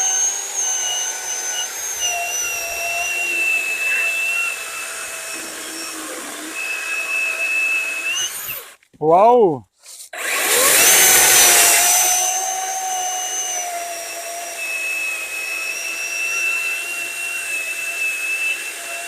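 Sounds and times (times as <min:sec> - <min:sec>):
electric chainsaw cutting log: 0:00.0 - 0:08.8, 0:10.2 - 0:19.0.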